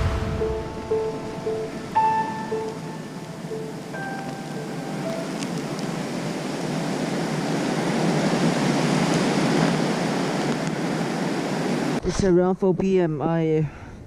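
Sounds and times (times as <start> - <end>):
strong wind blowing: 0.0 - 2.0.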